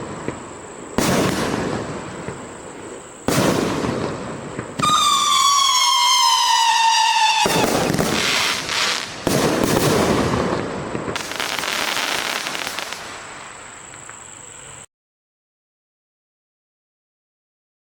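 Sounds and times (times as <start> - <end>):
firework crackling bursts: 0.0 - 14.3
falling firework whistle: 3.3 - 13.3.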